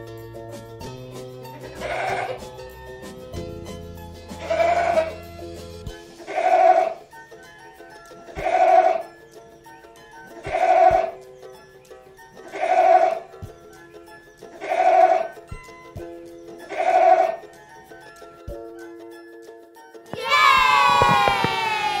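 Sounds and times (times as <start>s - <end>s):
background music: 0.0s - 22.0s
goat bleating: 1.6s - 2.4s, 4.4s - 5.2s, 6.2s - 7.0s, 12.4s - 13.2s.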